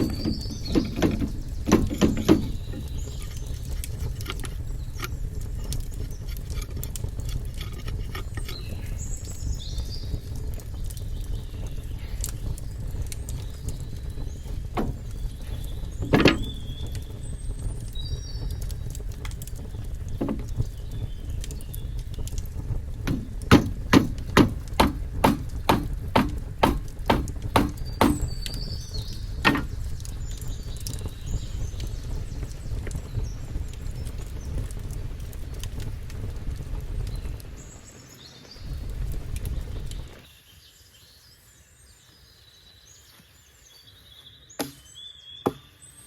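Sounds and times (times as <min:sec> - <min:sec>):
even knocks: 0:00.0 - 0:02.9, 0:14.5 - 0:16.7, 0:20.1 - 0:20.7, 0:23.0 - 0:28.6, 0:29.4 - 0:30.1
birds chirping: 0:00.0 - 0:46.0.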